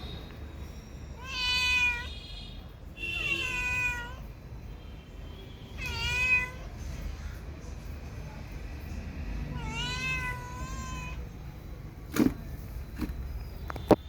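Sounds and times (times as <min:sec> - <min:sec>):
cat meowing: 0:01.2 - 0:02.1, 0:03.2 - 0:04.3, 0:05.8 - 0:06.7, 0:09.5 - 0:11.4.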